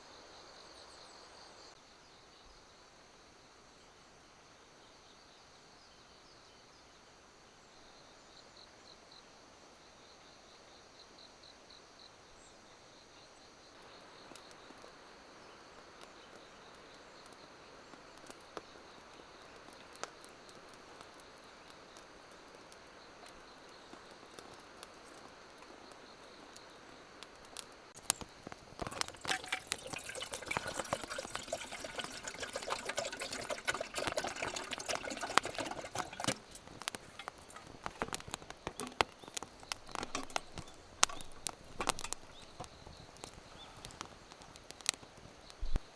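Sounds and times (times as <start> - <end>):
crickets chirring: 9.8 - 45.9
clattering and splashy crackling: 28.0 - 45.9.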